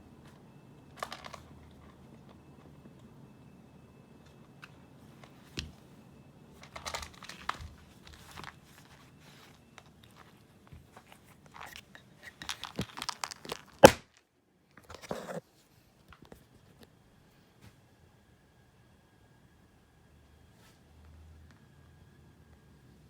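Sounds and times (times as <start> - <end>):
crinkling and crunching: 6.6 - 14.2
short scrapes: 14.9 - 15.4.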